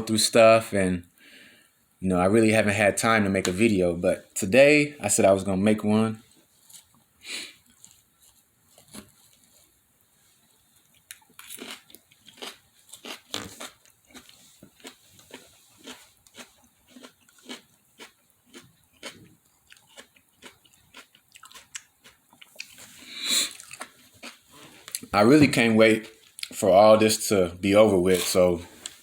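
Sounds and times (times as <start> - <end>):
person chewing crunchy food: 10.9 - 25.1.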